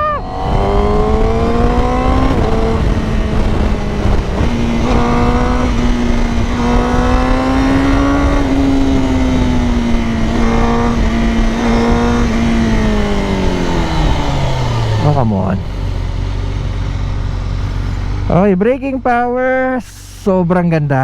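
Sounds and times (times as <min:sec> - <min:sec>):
wind rush on microphone: 0:00.0 - 0:16.0
motorcycle engine accelerating: 0:00.0 - 0:20.6.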